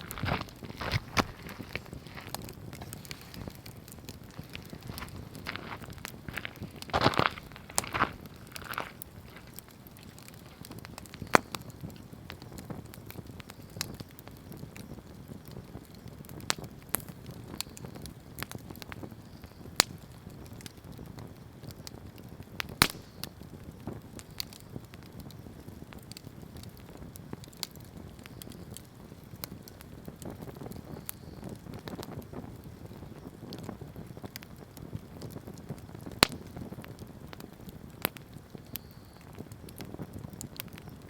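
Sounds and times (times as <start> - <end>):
campfire burning and crackling: 0.0 - 41.0.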